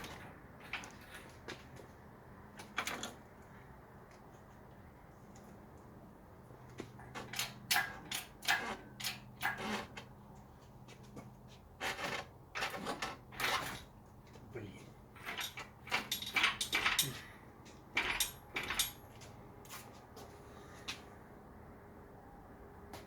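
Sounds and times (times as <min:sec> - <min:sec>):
metallic clunks and scrapes: 0:11.8 - 0:14.0, 0:17.9 - 0:19.2.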